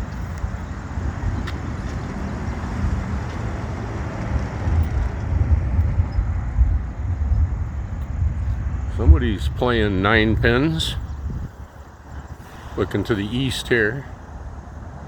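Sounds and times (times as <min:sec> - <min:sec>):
distant thunder rumbling: 0:00.9 - 0:12.4.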